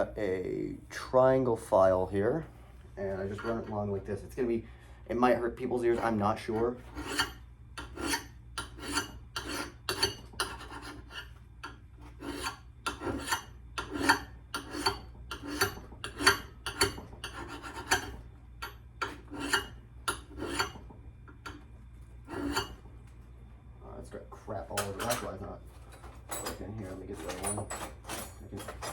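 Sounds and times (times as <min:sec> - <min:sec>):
file rasping on axe head: 0:03.2 - 0:03.7, 0:05.8 - 0:20.8, 0:22.2 - 0:22.8.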